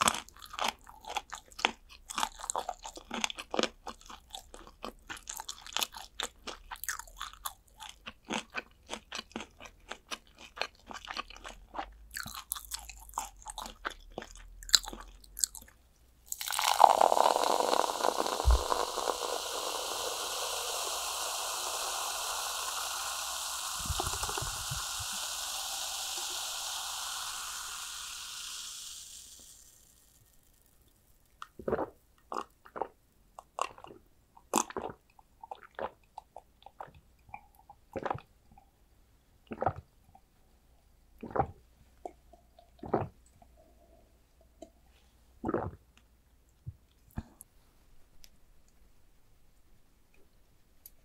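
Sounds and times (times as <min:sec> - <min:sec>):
crunching fried chicken: 0:00.0 - 0:32.9
steady hiss: 0:16.3 - 0:31.4.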